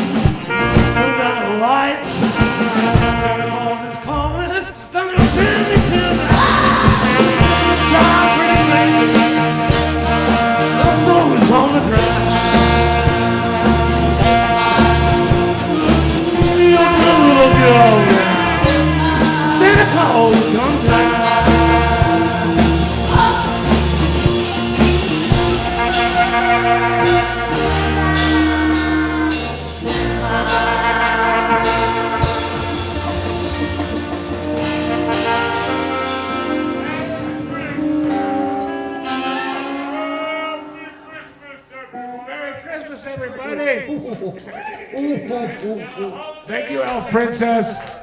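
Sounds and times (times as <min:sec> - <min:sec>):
live rock band playing: 0:00.0 - 0:40.8
pulsing bass line: 0:05.2 - 0:37.8
bending guitar lead lines: 0:05.2 - 0:40.7.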